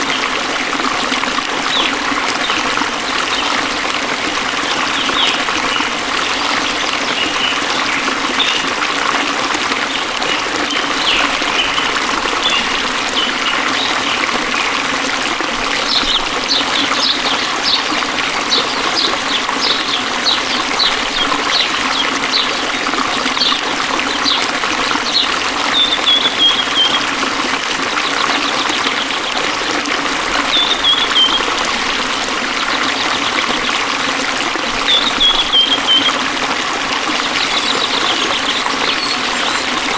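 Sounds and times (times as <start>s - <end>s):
water flowing: 0.0s - 39.9s
bird chirping: 37.2s - 39.9s.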